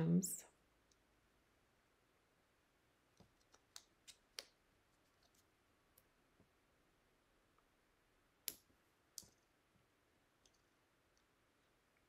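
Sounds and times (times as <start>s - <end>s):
faint clicks and taps: 8.4s - 11.3s.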